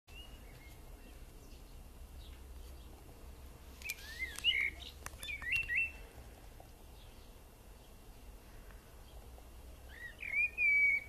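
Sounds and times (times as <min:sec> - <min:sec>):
bird chirps and whistled calls: 0:03.8 - 0:06.0, 0:09.9 - 0:11.0.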